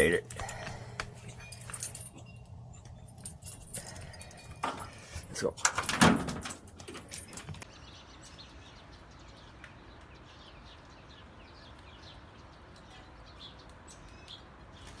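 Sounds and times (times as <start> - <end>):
small songbirds chirping: 7.2 - 15.0.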